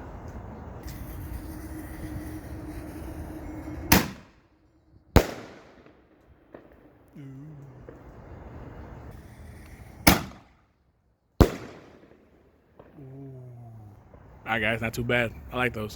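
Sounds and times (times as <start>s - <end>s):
steady background hum: 0.0s - 15.9s
firework bangs: 0.8s - 4.4s, 5.1s - 10.6s, 11.4s - 13.1s.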